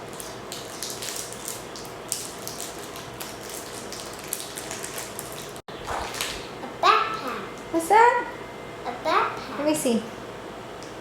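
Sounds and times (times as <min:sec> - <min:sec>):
plastic packaging crinkling: 0:00.1 - 0:06.4.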